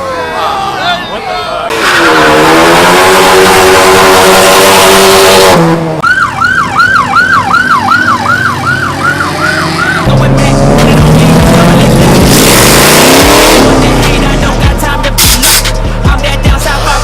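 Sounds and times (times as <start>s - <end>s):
car engine at high revs: 1.7s - 6.0s, 7.6s - 15.8s
police siren yelp: 6.0s - 10.1s.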